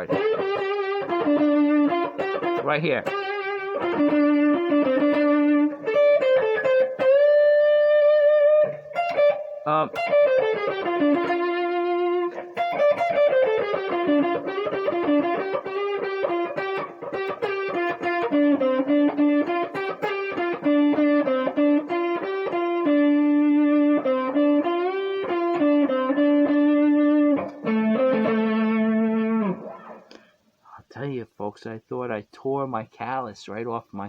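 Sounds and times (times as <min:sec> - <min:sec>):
electric blues guitar: 0:00.0 - 0:30.4.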